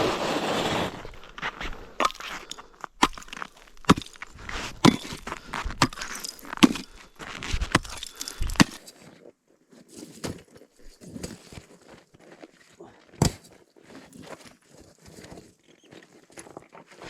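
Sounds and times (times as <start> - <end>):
broken ice crunching and scraping: 0.0 - 14.7
axe striking ice: 0.9 - 8.9, 10.2 - 11.4, 13.2 - 13.5.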